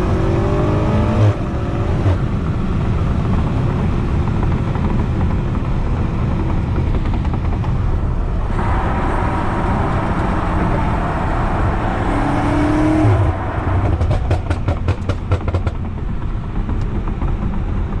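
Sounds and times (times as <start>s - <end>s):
car engine and exhaust rumble: 0.0s - 18.0s
exhaust crackles and pops: 13.8s - 18.0s.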